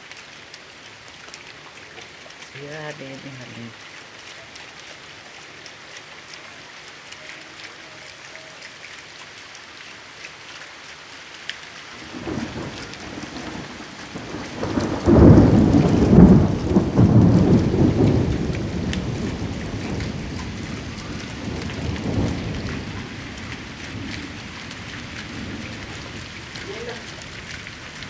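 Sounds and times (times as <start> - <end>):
raindrop ticks: 0.0 - 28.0
steady rain: 0.0 - 28.0
thunder rumble: 12.0 - 28.0.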